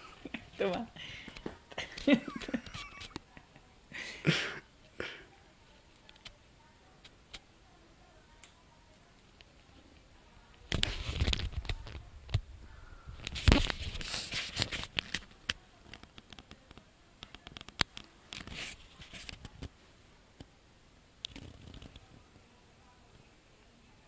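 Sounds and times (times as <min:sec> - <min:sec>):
cats tussling: 0:00.0 - 0:03.4.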